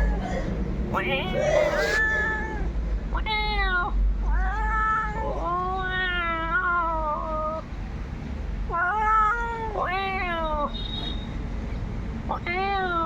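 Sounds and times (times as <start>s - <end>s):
cat meowing: 0.0s - 7.6s, 8.7s - 10.8s.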